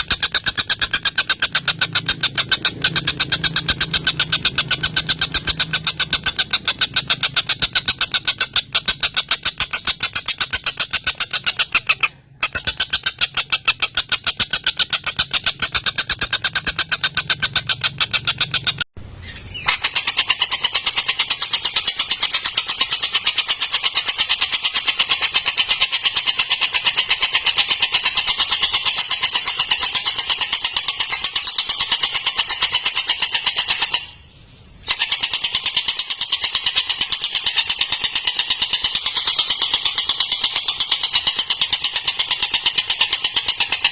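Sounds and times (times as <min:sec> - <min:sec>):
kingfisher chattering call: 0:00.0 - 0:18.8.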